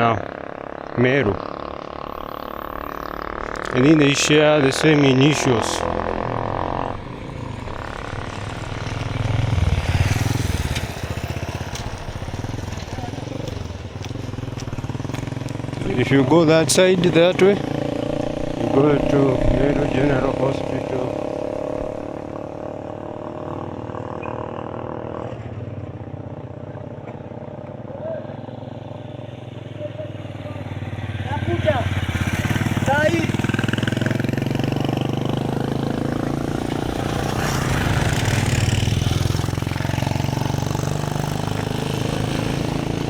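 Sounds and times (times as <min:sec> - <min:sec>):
motorcycle engine passing: 0:00.0 - 0:43.0.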